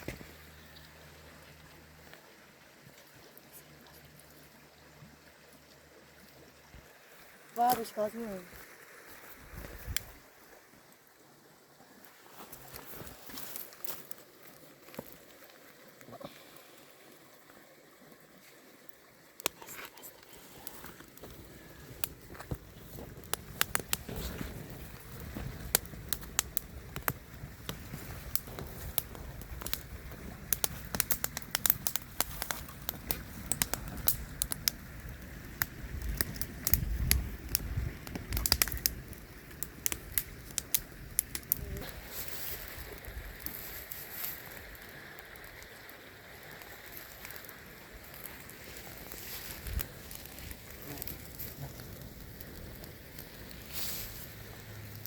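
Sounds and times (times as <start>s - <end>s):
wood fire crackling and popping: 7.5s - 8.8s, 9.5s - 10.3s, 12.4s - 16.6s, 18.4s - 55.0s.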